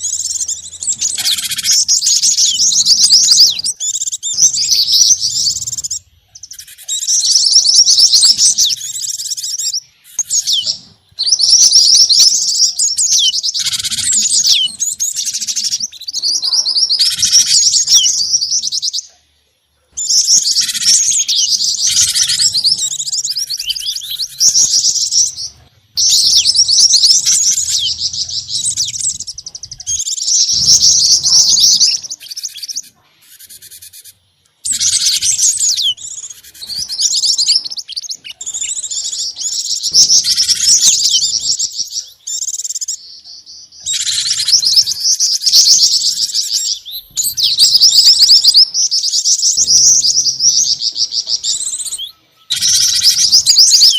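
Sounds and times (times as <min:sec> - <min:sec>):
songbirds chirping and twittering: 0:00.0 - 0:53.9.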